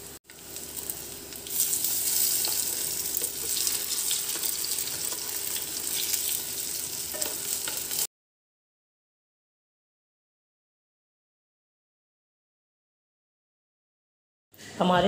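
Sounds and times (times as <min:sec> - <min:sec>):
hot oil sizzling: 0:00.0 - 0:08.1.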